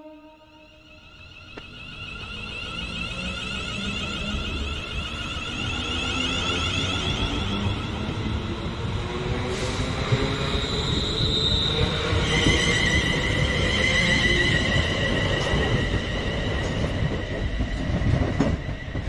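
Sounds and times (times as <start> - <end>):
wheels squealing on rails: 0.4 - 19.0
train rumbling: 0.9 - 19.0.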